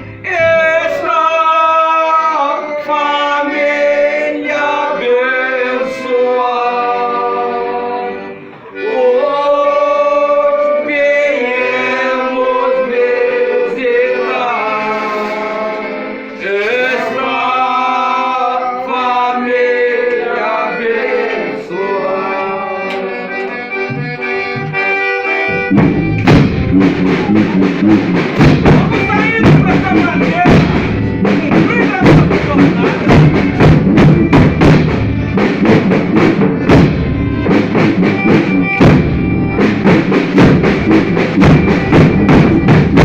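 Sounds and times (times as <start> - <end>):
accordion playing held chords: 0.0 - 43.0
voices singing along: 0.2 - 34.7
drum beat: 23.8 - 43.0.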